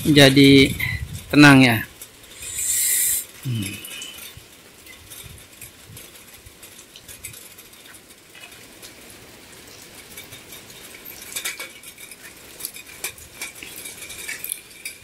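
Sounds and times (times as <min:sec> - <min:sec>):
rain on wet street: 0:00.0 - 0:02.4, 0:03.1 - 0:15.0
raindrop ticks: 0:03.3 - 0:15.0.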